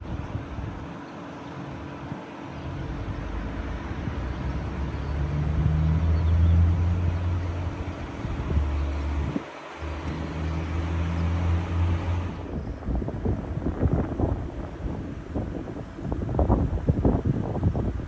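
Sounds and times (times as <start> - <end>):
vehicle engine humming: 0.0 - 16.8.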